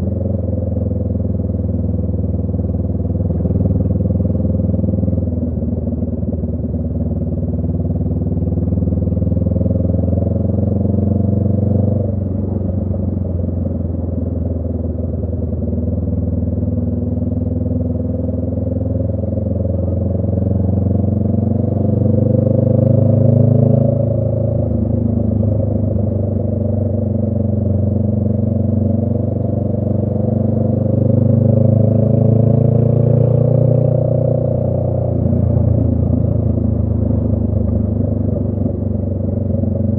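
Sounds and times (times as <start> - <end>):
motorcycle engine revving: 15.9 - 39.9.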